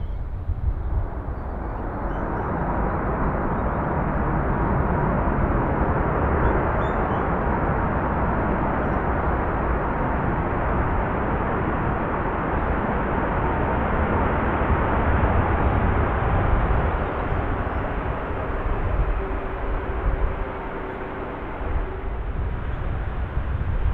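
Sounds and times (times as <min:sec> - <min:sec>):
jet airliner engine noise: 0:00.0 - 0:23.9.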